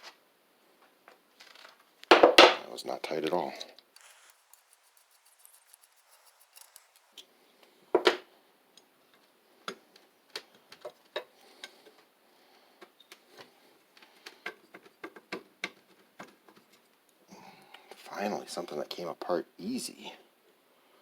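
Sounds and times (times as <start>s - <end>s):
metallic clicks of tools: 4.0s - 7.2s.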